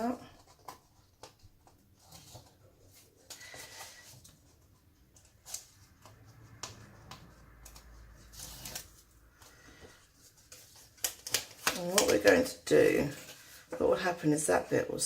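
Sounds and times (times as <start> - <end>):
card stock being folded: 5.2 - 13.8.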